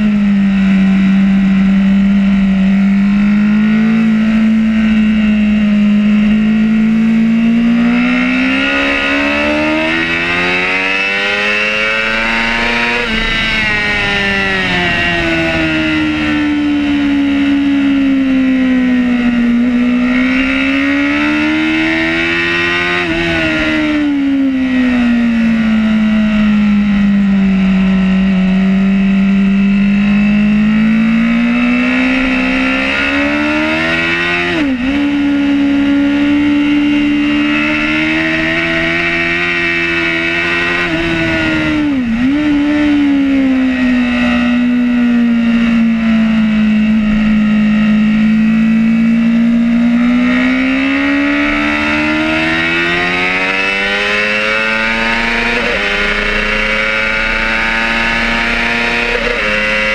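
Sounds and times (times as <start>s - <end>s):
racing motorcycle engine: 0.0s - 59.9s
wind rush: 10.5s - 17.8s, 37.7s - 45.4s.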